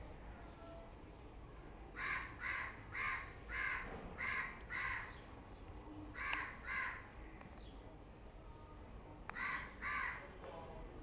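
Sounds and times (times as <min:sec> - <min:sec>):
bird giving harsh caws: 0:02.0 - 0:05.2, 0:06.2 - 0:07.1, 0:09.3 - 0:10.3.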